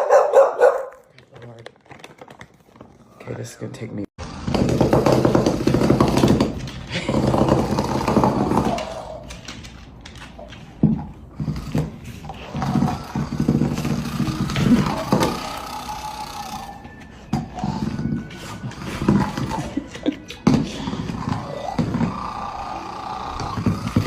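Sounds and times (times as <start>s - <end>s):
dog growling: 5.1s - 9.4s, 11.2s - 24.0s.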